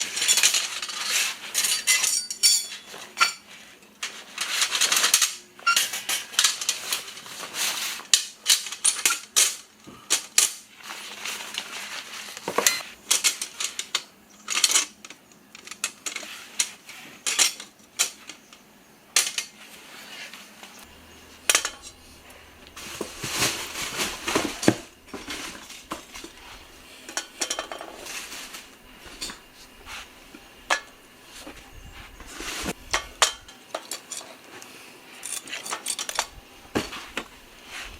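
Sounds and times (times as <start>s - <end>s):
scraping or rustling: 0.0s - 2.0s, 10.8s - 13.9s, 15.6s - 18.4s, 19.5s - 37.9s
metal objects clinking: 0.0s - 3.4s, 20.8s - 29.6s.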